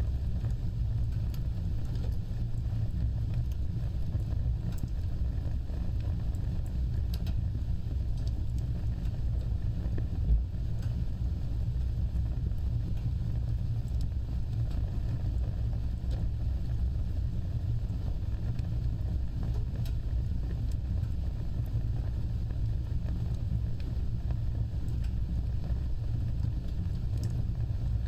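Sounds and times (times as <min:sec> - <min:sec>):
faint fire crackles: 0:00.0 - 0:28.0
wood fire burning: 0:00.0 - 0:28.0.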